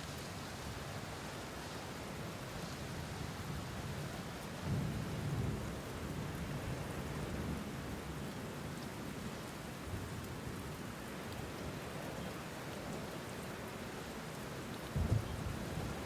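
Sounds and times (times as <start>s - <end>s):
steady rainfall: 0.0s - 16.0s
low roll of thunder: 15.0s - 16.0s.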